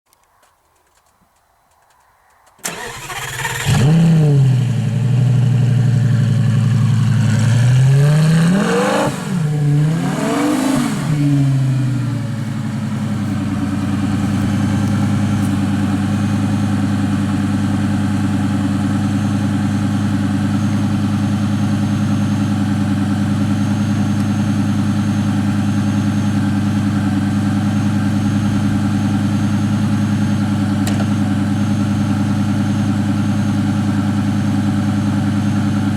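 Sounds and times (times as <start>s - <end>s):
sports car engine revving and idling: 3.3s - 35.9s.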